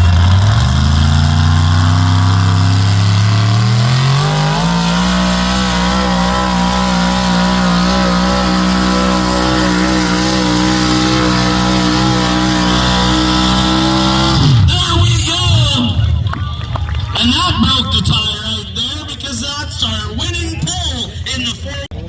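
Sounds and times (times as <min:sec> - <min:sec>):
truck engine at full throttle: 0:00.0 - 0:19.3.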